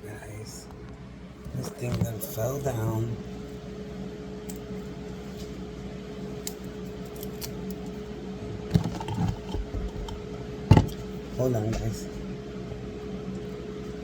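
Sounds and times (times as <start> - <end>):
electric fan hum: 0.0 - 14.0
knocks of kitchen items: 8.7 - 11.0.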